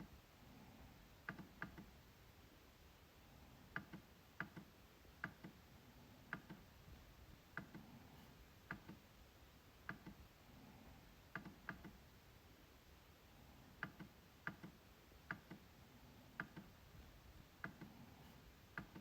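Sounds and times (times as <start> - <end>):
trackpad clicks: 1.3 - 1.9, 3.7 - 5.6, 6.3 - 6.7, 8.7 - 9.0, 9.8 - 10.2, 11.3 - 12.0, 13.8 - 15.7, 16.4 - 16.7.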